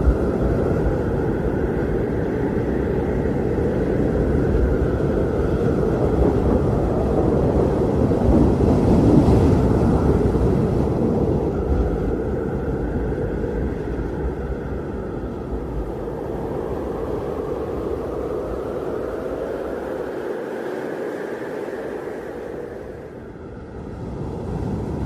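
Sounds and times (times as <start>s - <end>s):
blizzard wind rumbling: 0.0s - 25.0s
faint wind howling: 0.0s - 25.0s.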